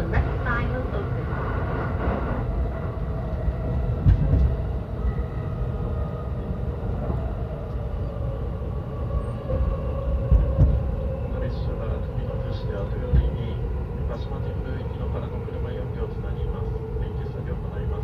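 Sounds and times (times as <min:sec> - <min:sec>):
faint train whine: 0:00.0 - 0:18.0
train wheels rumbling on rail: 0:00.0 - 0:18.0
heavy train knocks: 0:04.0 - 0:04.6, 0:10.2 - 0:10.9, 0:13.0 - 0:13.5.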